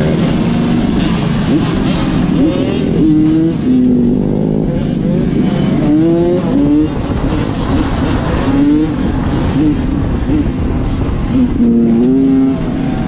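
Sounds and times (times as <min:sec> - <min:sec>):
motorbike engine revving: 0:00.0 - 0:13.0
wind rumble on microphone: 0:00.0 - 0:13.0.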